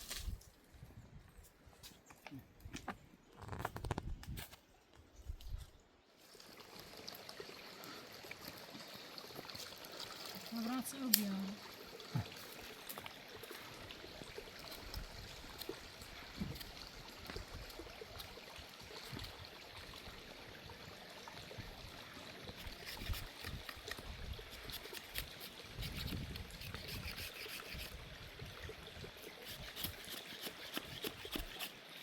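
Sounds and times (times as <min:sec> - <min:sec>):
stream trickling: 0:05.2 - 0:32.0.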